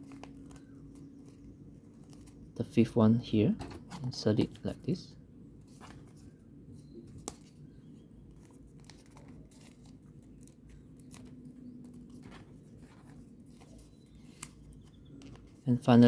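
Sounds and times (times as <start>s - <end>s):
paper rustling: 0.0s - 2.6s, 5.6s - 15.7s.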